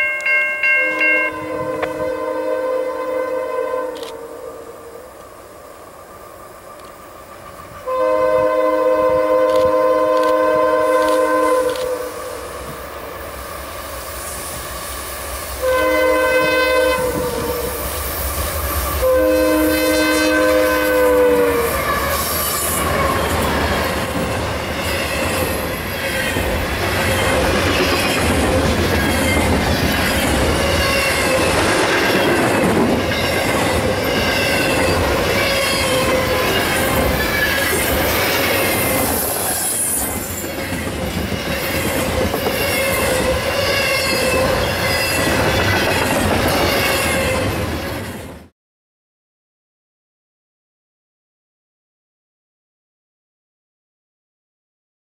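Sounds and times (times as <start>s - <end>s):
locomotive air horn blasts: 0.6s - 5.0s, 7.8s - 12.5s, 15.6s - 17.9s, 18.8s - 23.2s
train wheels rumbling on rails: 16.4s - 48.5s.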